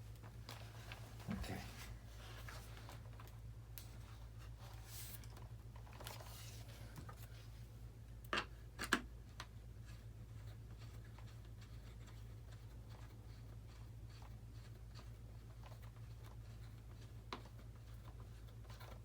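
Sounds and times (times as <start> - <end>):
soft rustles: 0.0 - 7.7.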